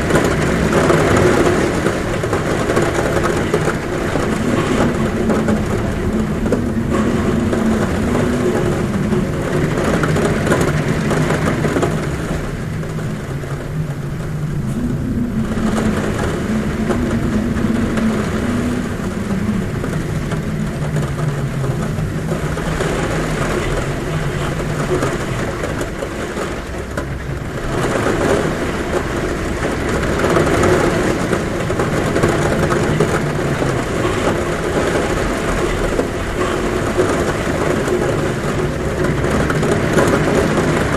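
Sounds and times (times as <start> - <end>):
heavy rain on a roof: 0.0 - 40.9
wind humming at a window: 0.0 - 40.9.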